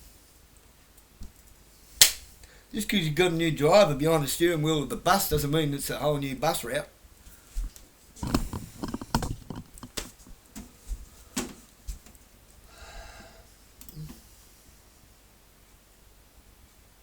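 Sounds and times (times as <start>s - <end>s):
sharp clicks and knocks: 8.2s - 10.7s.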